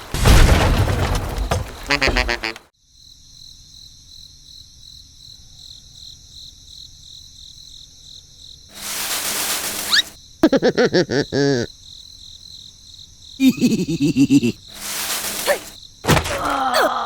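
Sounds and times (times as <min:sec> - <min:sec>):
crickets chirping: 0:02.8 - 0:17.0.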